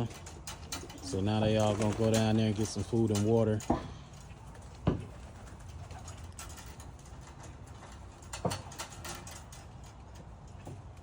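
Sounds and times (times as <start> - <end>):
pigeons clicking and tapping: 0.0 - 11.0.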